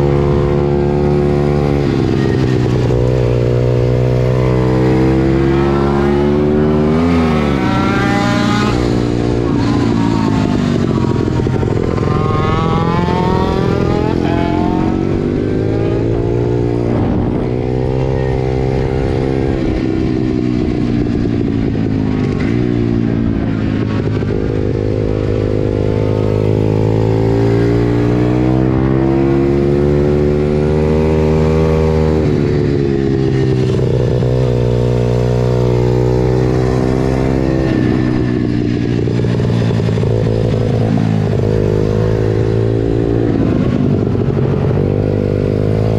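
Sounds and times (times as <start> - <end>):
pit bike engine revving: 0.0 - 20.1.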